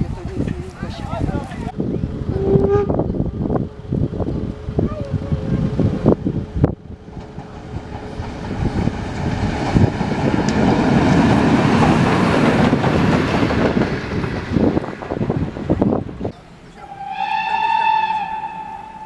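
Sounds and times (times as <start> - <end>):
steam locomotive passing: 1.5 - 19.0
train wheels clattering: 6.6 - 19.0.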